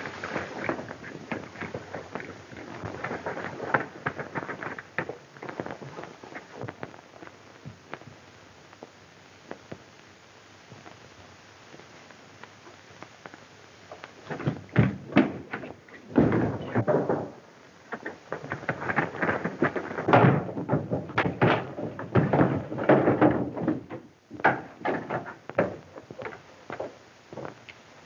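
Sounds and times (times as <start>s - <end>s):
knocks and thumps: 13.9s - 27.6s.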